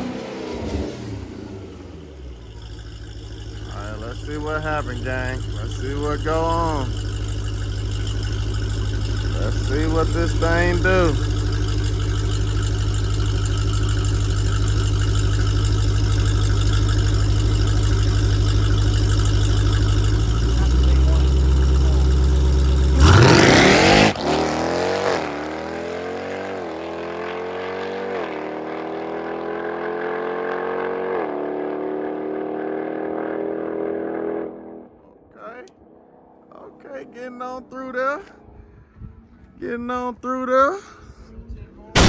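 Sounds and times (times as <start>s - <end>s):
car launching and upshifting: 0.0s - 30.0s
car engine idling and revving: 0.0s - 35.0s.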